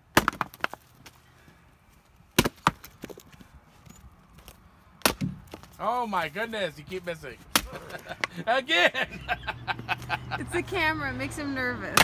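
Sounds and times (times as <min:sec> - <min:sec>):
axe chopping wood: 0:00.1 - 0:00.8, 0:02.4 - 0:03.2, 0:05.0 - 0:05.8, 0:07.4 - 0:08.4.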